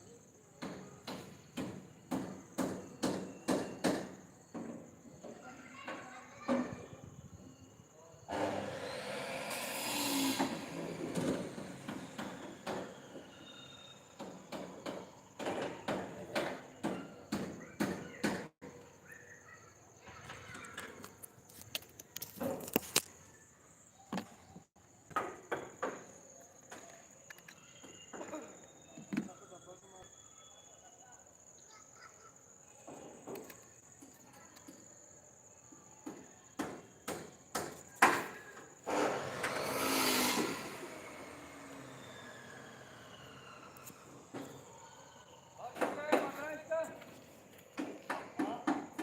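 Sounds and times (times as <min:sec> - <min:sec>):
construction knocks and clicks: 0:00.6 - 0:06.0, 0:45.7 - 0:46.6, 0:47.6 - 0:49.0.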